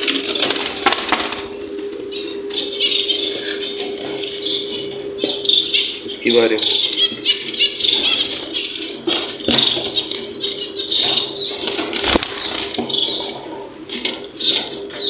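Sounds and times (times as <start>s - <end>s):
cages and feeders clicking: 0.0s - 15.0s
small birds chirping: 0.0s - 15.0s
steady hum: 0.0s - 15.0s.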